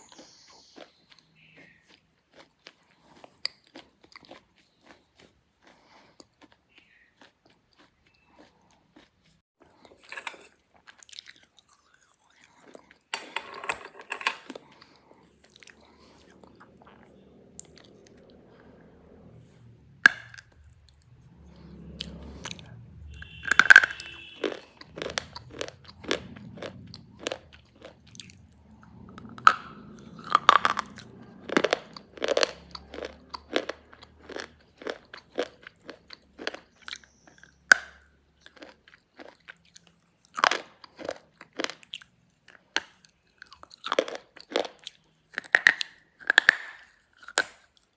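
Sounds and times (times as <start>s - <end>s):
crisp chewing crunches: 0.0s - 13.1s, 14.4s - 19.2s, 20.0s - 47.9s.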